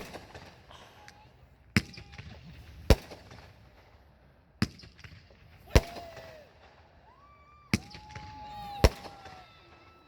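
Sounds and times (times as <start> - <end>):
fireworks bangs: 4.6 - 10.0.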